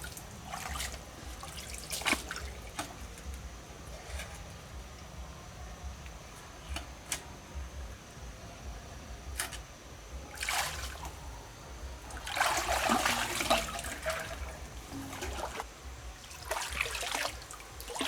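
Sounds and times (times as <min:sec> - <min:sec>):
water splashing and trickling: 0:00.0 - 0:04.8, 0:10.2 - 0:18.0.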